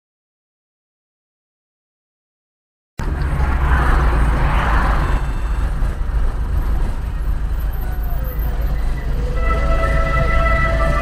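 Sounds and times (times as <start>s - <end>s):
vehicle rumbling on road: 3.0s - 11.0s.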